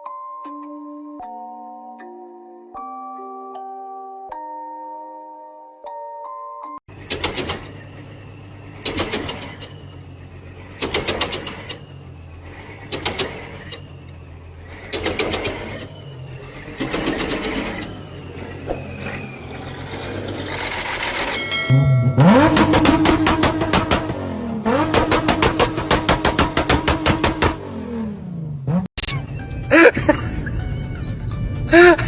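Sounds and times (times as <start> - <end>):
rattling clicks: 6.9 - 21.6
machinery humming: 6.9 - 28.8.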